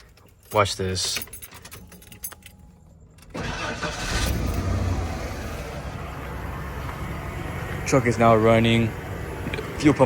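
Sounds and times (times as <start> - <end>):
truck engine starting and running: 3.1 - 10.0.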